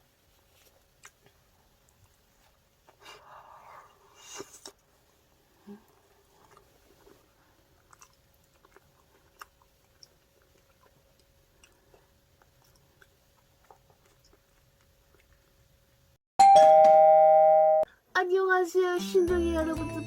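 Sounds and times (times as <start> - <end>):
soft crunching while chewing: 0.2 - 16.2.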